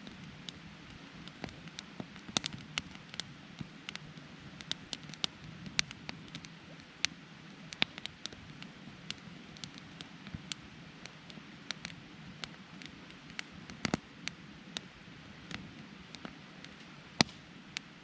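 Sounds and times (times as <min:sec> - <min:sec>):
campfire crackling and popping: 0:00.0 - 0:18.0
low rush of burning: 0:00.0 - 0:18.0.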